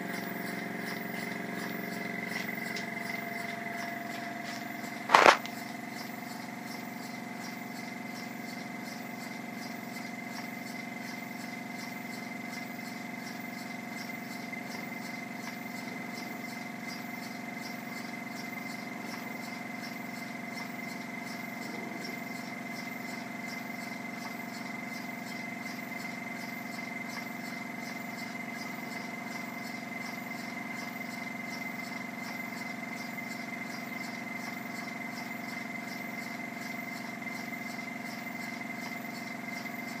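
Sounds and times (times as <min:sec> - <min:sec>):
steady high whine: 0:00.0 - 0:11.4.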